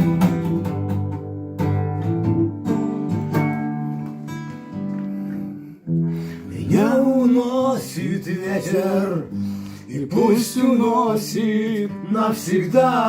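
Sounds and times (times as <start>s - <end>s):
acoustic guitar strumming chords: 0.0s - 13.0s
person singing: 6.2s - 13.0s.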